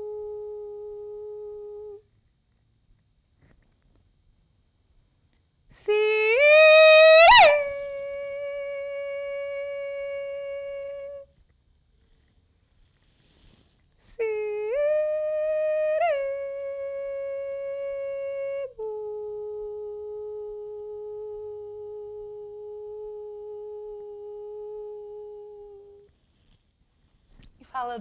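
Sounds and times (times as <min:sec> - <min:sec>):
woman singing long wordless notes: 0:00.0 - 0:02.0, 0:05.7 - 0:11.3, 0:14.0 - 0:26.1.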